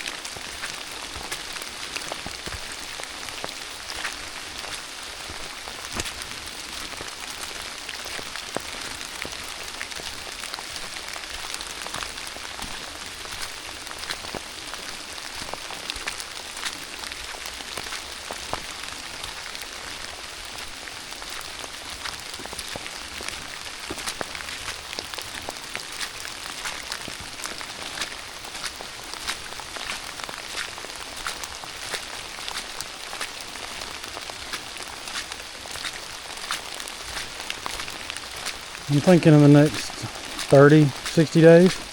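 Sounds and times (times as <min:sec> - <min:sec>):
rain hissing through woods: 0:00.0 - 0:41.9
raindrops ticking close by: 0:00.0 - 0:41.9.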